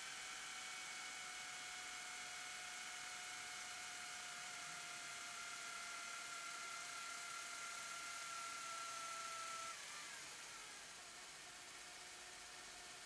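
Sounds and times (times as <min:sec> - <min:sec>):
small motor whining: 0:05.7 - 0:11.9.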